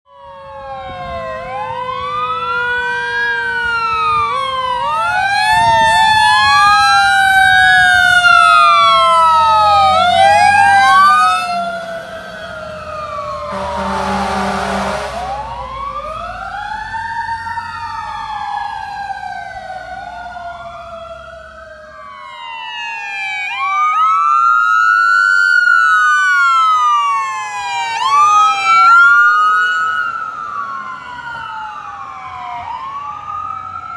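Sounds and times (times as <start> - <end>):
emergency sirens wailing: 0.1 - 33.9
vehicle passing: 1.0 - 21.9.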